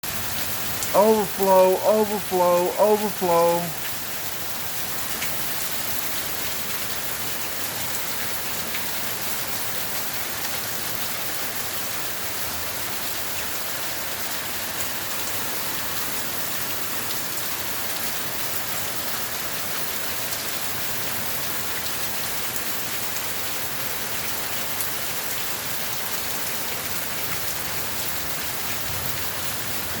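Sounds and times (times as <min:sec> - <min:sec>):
hard rain hissing: 0:00.1 - 0:19.7, 0:25.8 - 0:30.0.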